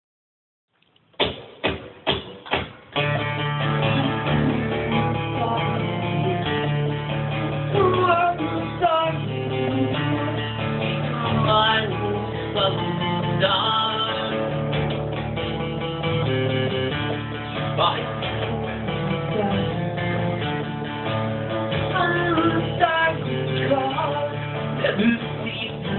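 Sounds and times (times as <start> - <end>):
live band playing: 1.2 - 25.9.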